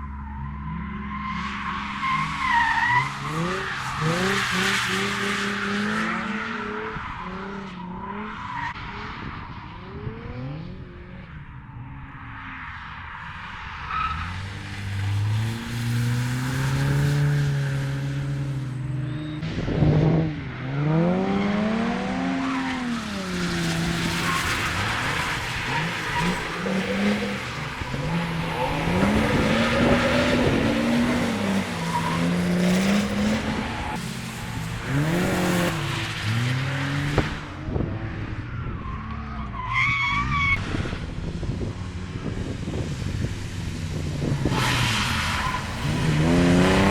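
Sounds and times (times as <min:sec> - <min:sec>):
car engine revving: 0:01.6 - 0:11.2, 0:13.9 - 0:46.9
tyre squeal: 0:18.7 - 0:19.5.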